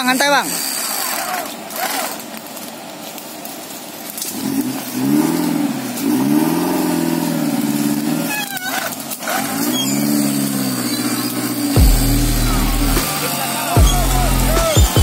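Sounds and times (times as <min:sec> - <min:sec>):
car engine revving: 0:04.2 - 0:15.0.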